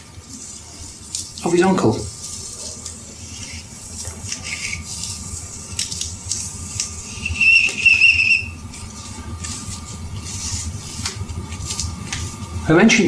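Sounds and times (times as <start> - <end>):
high wavering whistle: 7.0 - 8.7.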